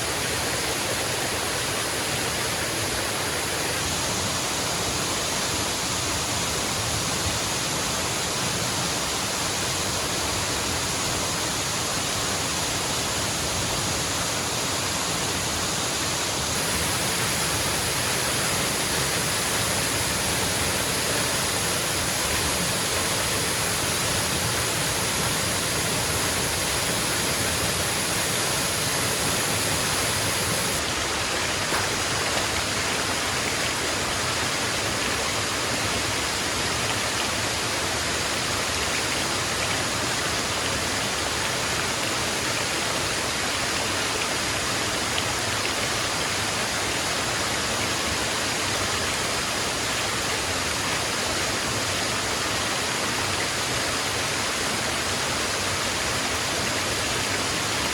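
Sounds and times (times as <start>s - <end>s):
waterfall rushing: 12.9s - 39.6s, 51.2s - 57.9s.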